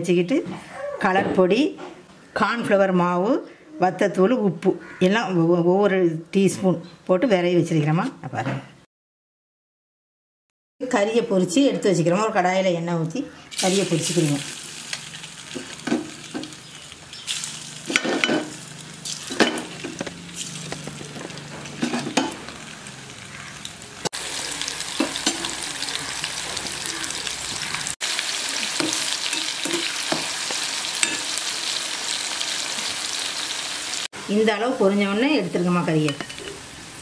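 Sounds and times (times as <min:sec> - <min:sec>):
chicken frying in oil: 0:13.5 - 0:35.1.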